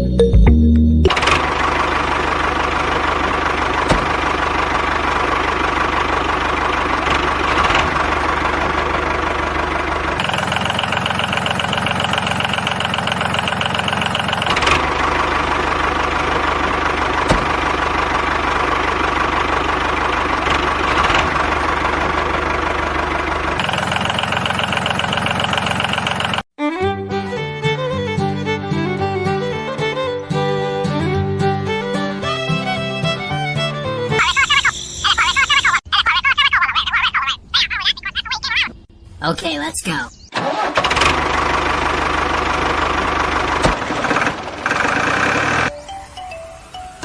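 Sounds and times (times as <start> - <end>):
small motor chugging: 10.2 - 15.2, 23.6 - 26.4.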